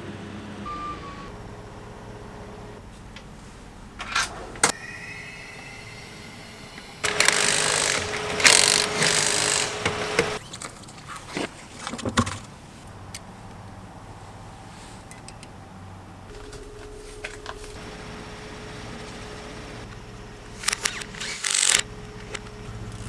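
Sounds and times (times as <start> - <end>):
power tool whining: 4.7 - 10.4, 17.2 - 23.0
sharp clicks: 6.8 - 10.4, 19.7 - 23.0.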